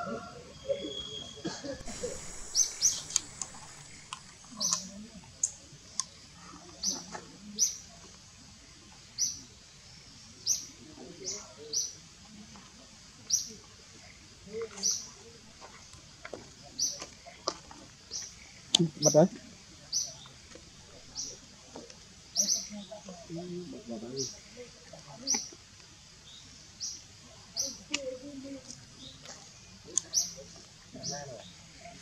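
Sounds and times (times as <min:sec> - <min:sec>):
small bird chirping: 0:00.7 - 0:06.2, 0:19.9 - 0:21.5, 0:25.2 - 0:25.6, 0:26.2 - 0:31.5.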